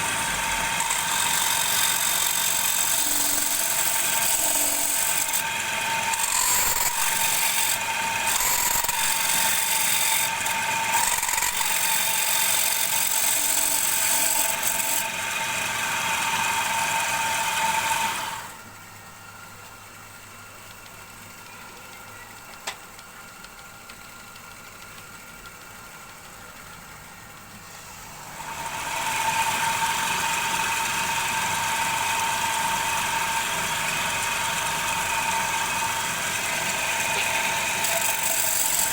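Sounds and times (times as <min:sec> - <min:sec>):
tool cutting wood: 0:00.0 - 0:18.6, 0:28.2 - 0:38.9
wood lathe whining: 0:00.0 - 0:18.6, 0:28.0 - 0:38.9.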